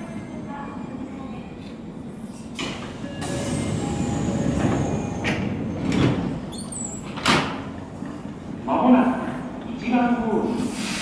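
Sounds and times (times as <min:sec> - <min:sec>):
train rumbling: 0:00.0 - 0:11.0
sliding train doors closing: 0:01.6 - 0:08.6.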